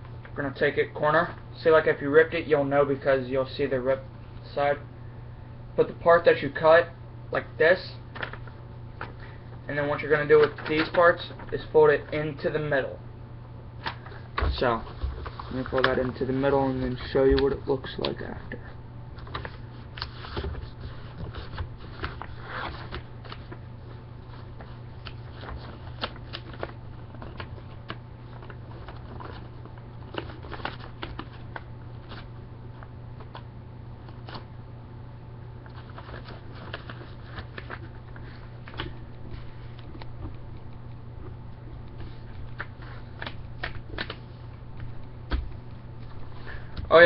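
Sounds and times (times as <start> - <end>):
paper rustling and crinkling: 10.0 - 11.7, 13.8 - 18.4, 19.2 - 32.4, 35.6 - 40.4.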